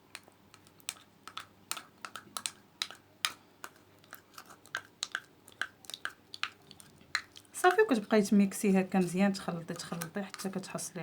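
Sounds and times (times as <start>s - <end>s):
utensil scraping small container: 8.9s - 10.7s.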